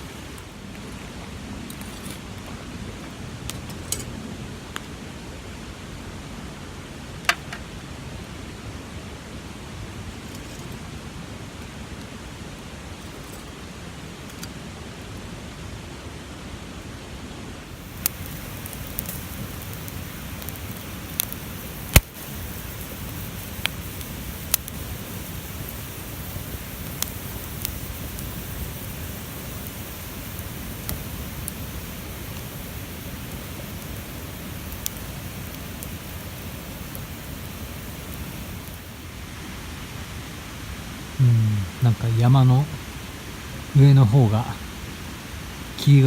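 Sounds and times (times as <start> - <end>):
campfire crackling and popping: 17.7 - 39.4.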